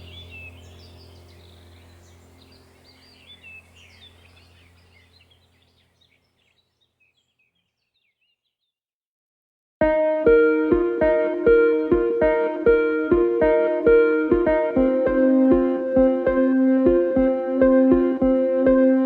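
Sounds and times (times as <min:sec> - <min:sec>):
steady low hum: 0:00.0 - 0:05.8
birds chirping: 0:00.0 - 0:08.7.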